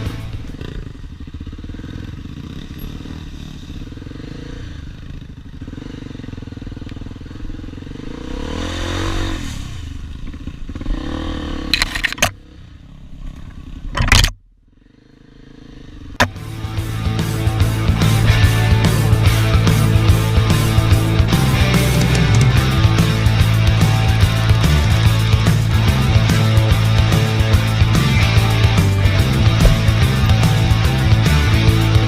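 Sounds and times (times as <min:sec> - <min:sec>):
dirt bike engine revving: 0:00.0 - 0:13.2, 0:14.8 - 0:32.0
sharp clattering knocks: 0:29.4 - 0:30.4.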